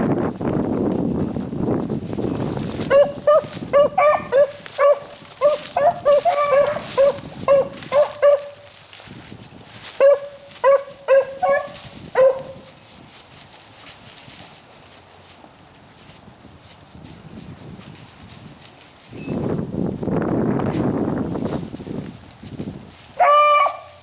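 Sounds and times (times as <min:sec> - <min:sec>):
hound baying with yelping barks: 0:02.8 - 0:08.7, 0:09.9 - 0:12.7, 0:23.2 - 0:24.0.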